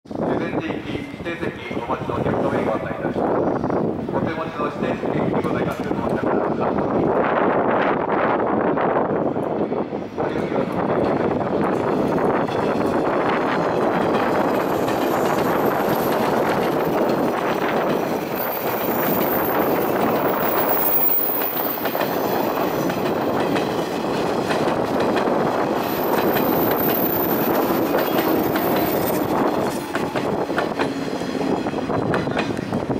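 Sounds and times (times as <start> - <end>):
train wheels rumbling on rail: 0.1 - 32.9
clickety-clack over rail joints: 5.2 - 6.6, 9.2 - 32.9.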